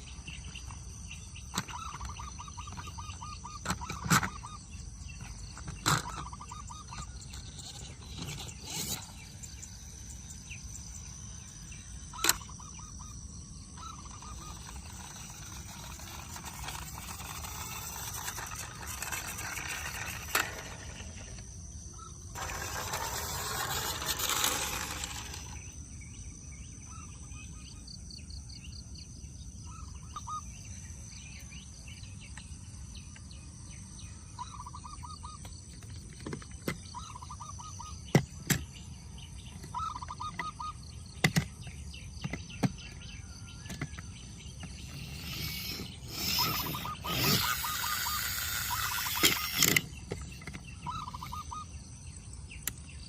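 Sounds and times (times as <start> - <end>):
insect drone: 0.0 - 53.0
short bird chirps: 44.8 - 51.8.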